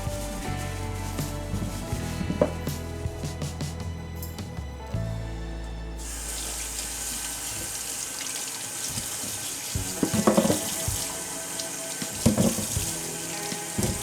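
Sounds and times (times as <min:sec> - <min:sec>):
tap running into a sink: 0:06.0 - 0:14.0
dishes clattering under water: 0:08.9 - 0:11.3, 0:12.0 - 0:14.0.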